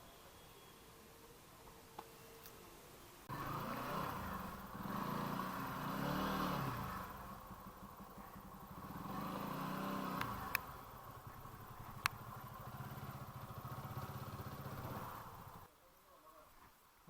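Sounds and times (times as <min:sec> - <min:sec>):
motorcycle engine revving: 0:03.3 - 0:15.7.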